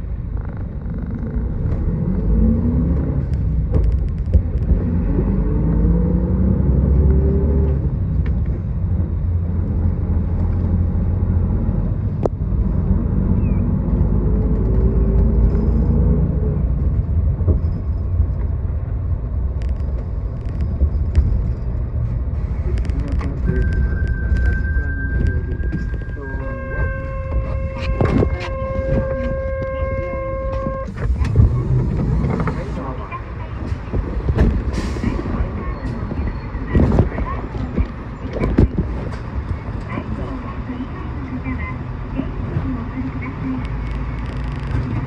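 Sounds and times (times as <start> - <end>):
bus engine rumble: 0.0 - 45.0.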